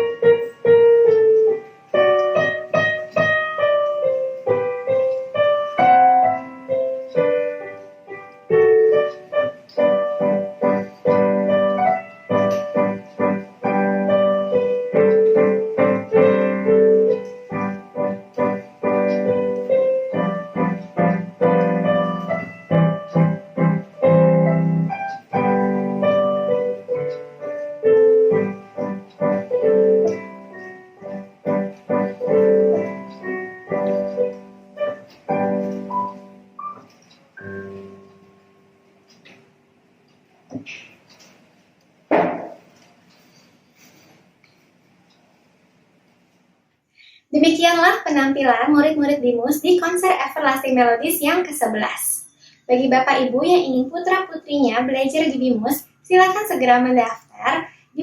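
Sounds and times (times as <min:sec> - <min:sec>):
solo piano piece: 0:00.0 - 0:44.7.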